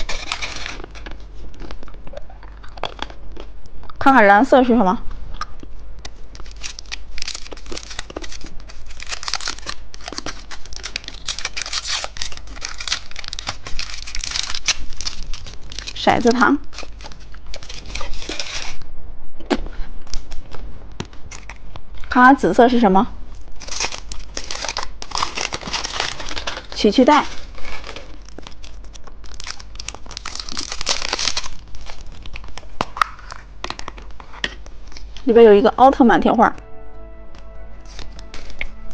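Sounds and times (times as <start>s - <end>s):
plastic candy wrapper crinkling: 0.0s - 3.6s, 5.5s - 18.8s, 23.4s - 35.3s, 37.8s - 38.9s.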